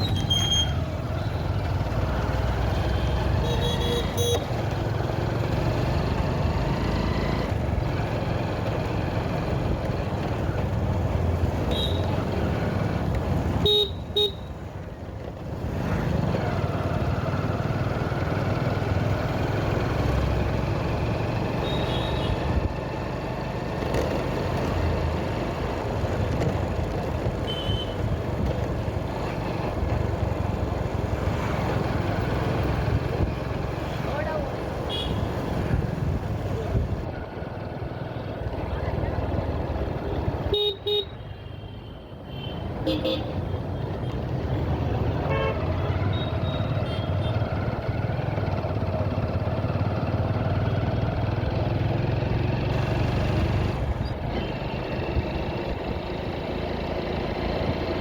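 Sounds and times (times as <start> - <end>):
motorcycle engine: 0.0 - 41.1, 42.6 - 58.0.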